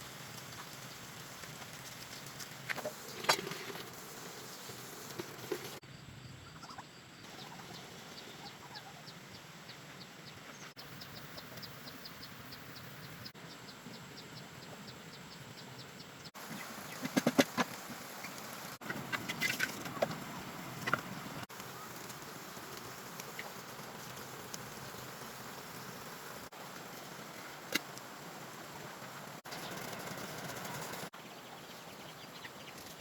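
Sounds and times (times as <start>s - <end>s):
chickens clucking: 16.4s - 22.1s.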